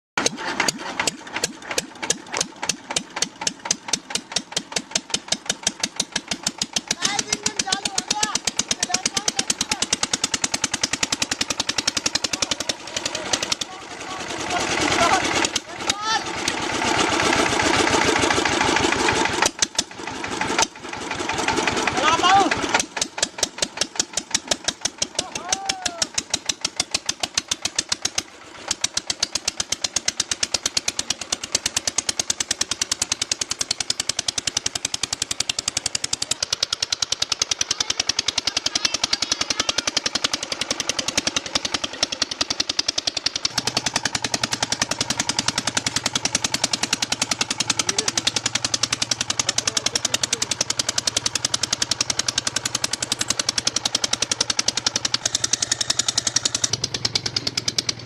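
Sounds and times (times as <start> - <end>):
tractor diesel engine running: 0.2 - 58.0.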